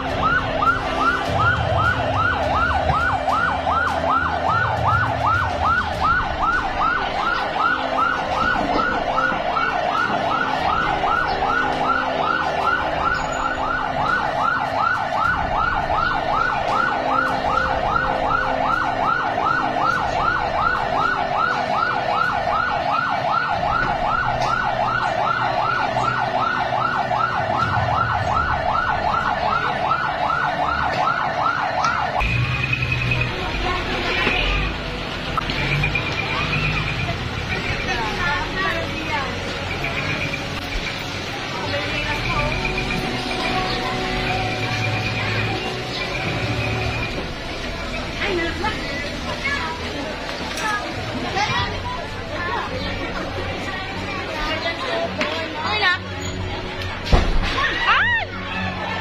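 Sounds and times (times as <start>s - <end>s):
siren in fast yelp: 0.0s - 32.2s.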